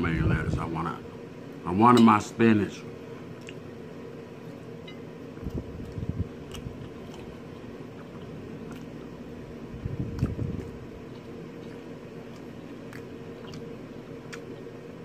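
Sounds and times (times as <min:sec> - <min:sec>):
close-up chewing: 0:05.4 - 0:09.2, 0:09.8 - 0:14.7.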